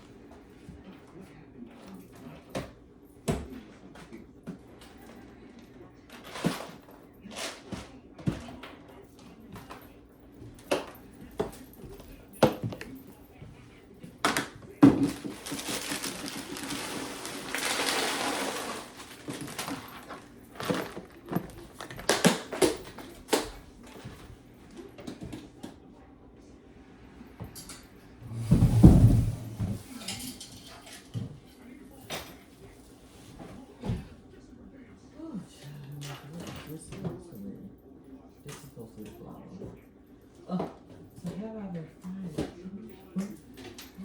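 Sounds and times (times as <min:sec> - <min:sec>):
objects knocking and clattering: 0:14.1 - 0:24.3, 0:27.5 - 0:31.5.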